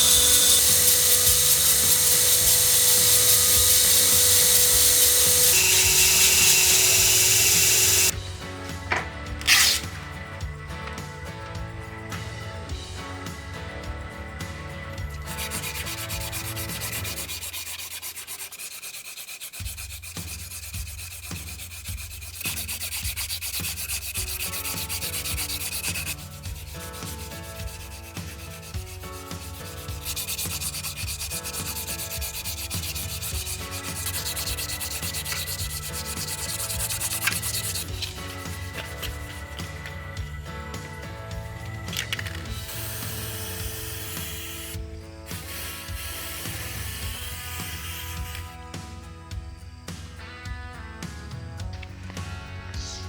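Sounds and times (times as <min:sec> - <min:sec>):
abrasive scraping steel knife: 0:09.4 - 0:09.9, 0:15.2 - 0:40.2.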